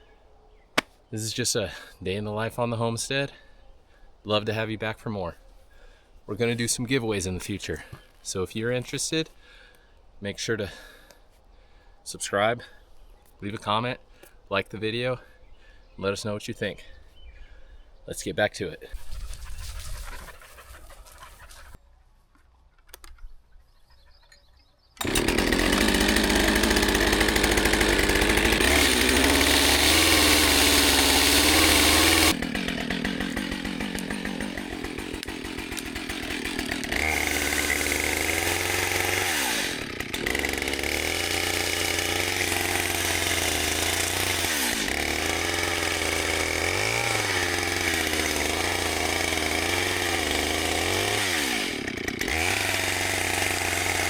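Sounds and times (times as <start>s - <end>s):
chainsaw running: 25.0s - 54.0s.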